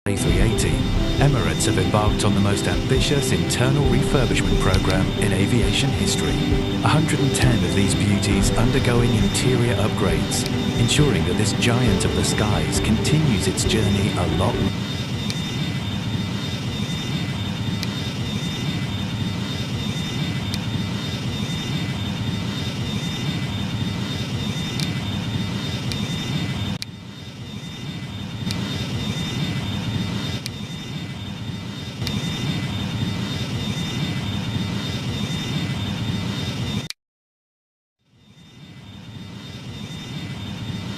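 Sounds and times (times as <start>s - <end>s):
jet engines rushing: 0.1s - 14.7s
thin high engine whine: 0.1s - 26.3s.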